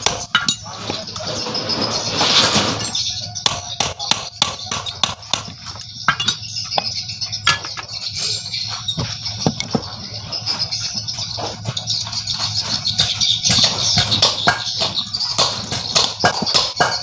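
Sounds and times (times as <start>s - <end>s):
hand tools clinking on metal parts: 0.0s - 1.3s, 2.8s - 9.8s.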